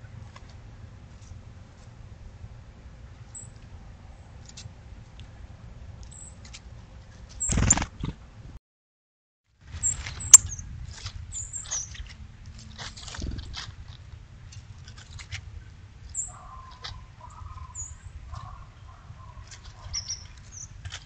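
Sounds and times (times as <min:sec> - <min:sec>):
low background rumble: 0:00.0 - 0:08.6
small birds chipping: 0:03.2 - 0:05.4, 0:09.8 - 0:12.1, 0:14.4 - 0:21.0.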